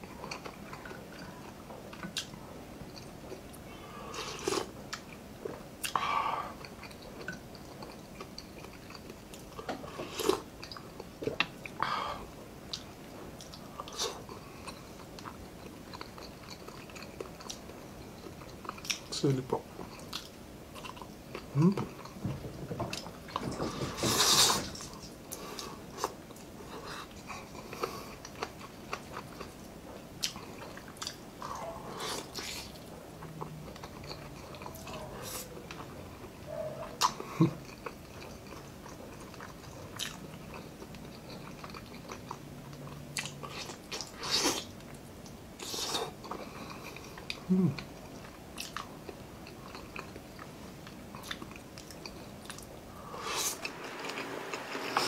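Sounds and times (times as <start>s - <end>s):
man chewing and biting food: 0.0s - 55.0s
man humming: 21.5s - 21.9s, 47.4s - 47.8s.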